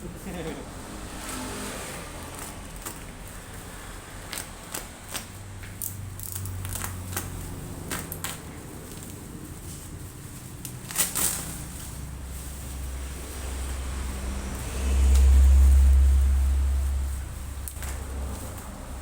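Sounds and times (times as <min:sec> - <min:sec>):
laptop and packaging handled: 0:01.2 - 0:13.5.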